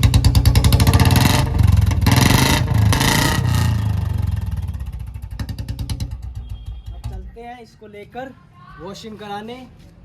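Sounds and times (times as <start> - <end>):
motorcycle engine idling and revving: 0.0 - 7.4.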